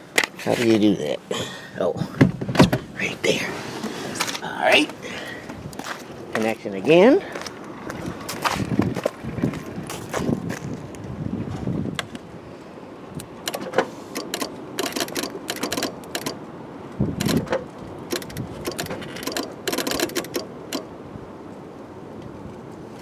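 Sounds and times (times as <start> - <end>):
rapid mechanical clicking and rattling: 13.4 - 16.4, 17.2 - 20.9.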